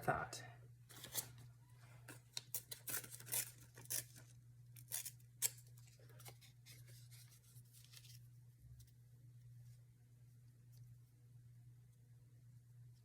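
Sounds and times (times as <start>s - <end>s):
scissors cutting paper: 0.9s - 1.4s, 2.1s - 8.1s
paper handling: 5.8s - 8.3s.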